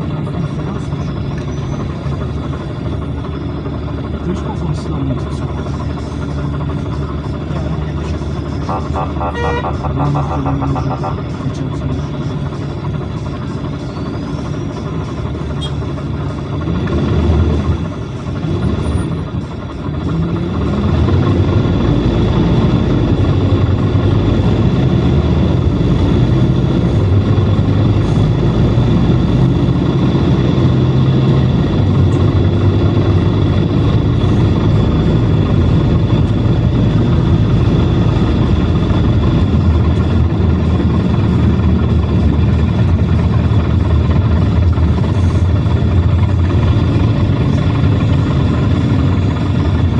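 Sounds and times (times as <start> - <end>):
bus engine running: 0.0 - 49.9.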